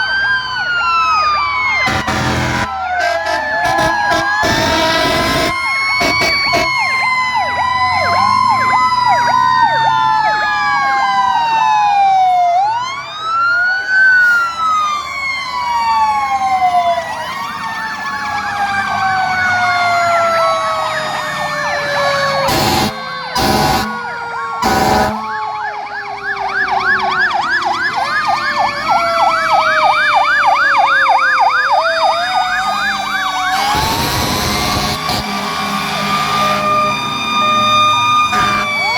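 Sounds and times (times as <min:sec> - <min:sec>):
fire truck sirens wailing: 0:00.0 - 0:38.9
loud horn blasts: 0:01.8 - 0:07.0, 0:22.4 - 0:25.4, 0:33.5 - 0:37.0, 0:38.2 - 0:38.9.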